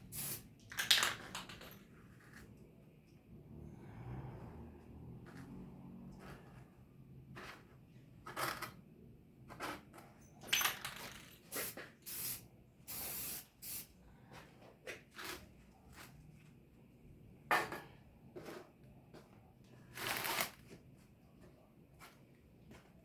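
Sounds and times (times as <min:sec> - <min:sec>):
short hissing bursts: 0:00.0 - 0:00.4, 0:11.5 - 0:13.9.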